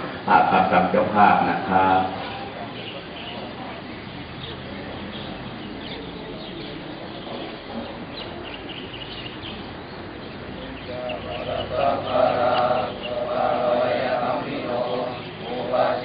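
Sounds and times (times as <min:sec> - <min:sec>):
monks chanting together: 0:00.0 - 0:02.5, 0:10.5 - 0:16.0
birds chirping: 0:00.0 - 0:16.0
faint voices: 0:00.0 - 0:16.0.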